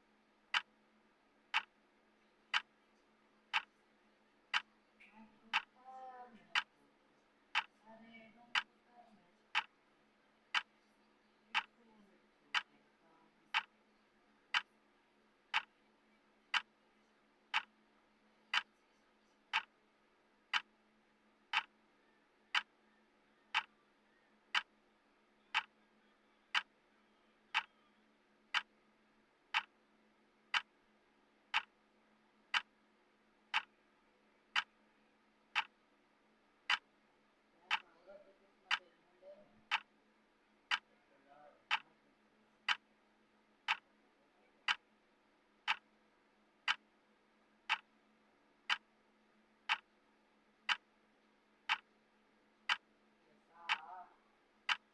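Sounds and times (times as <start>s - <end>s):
clock ticking: 0.5s - 0.8s, 1.5s - 1.8s, 2.5s - 2.8s, 3.5s - 3.8s, 4.4s - 4.7s, 5.4s - 5.8s, 6.4s - 6.7s, 7.5s - 7.8s, 8.4s - 8.7s, 9.5s - 9.8s, 10.5s - 10.7s, 11.5s - 11.8s, 12.5s - 12.7s, 13.5s - 13.8s, 14.5s - 14.8s, 15.5s - 15.8s, 16.5s - 16.8s, 17.5s - 17.8s, 18.5s - 18.8s, 19.5s - 19.9s, 20.5s - 20.8s, 21.4s - 21.8s, 22.4s - 22.8s, 23.5s - 23.8s, 24.4s - 24.8s, 25.4s - 25.8s, 26.5s - 26.8s, 27.5s - 27.8s, 28.5s - 29.8s, 30.4s - 30.8s, 31.5s - 31.9s, 32.5s - 34.9s, 35.5s - 35.9s, 36.6s - 37.0s, 37.6s - 38.0s, 38.7s - 38.9s, 39.6s - 40.0s, 40.6s - 40.9s, 41.6s - 42.0s, 42.6s - 43.0s, 43.6s - 44.0s, 44.6s - 45.0s, 45.6s - 46.0s, 46.6s - 47.0s, 47.6s - 49.0s, 49.6s - 51.0s, 51.6s - 53.0s, 53.6s - 54.0s, 54.6s - 54.9s.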